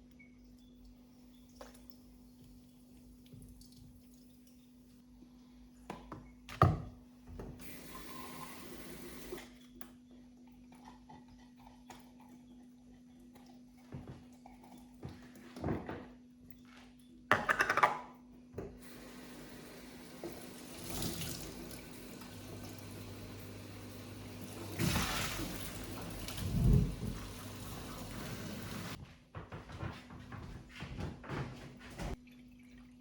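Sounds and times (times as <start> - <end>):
tap water running into sink: 7.5 - 9.4, 18.8 - 29.0.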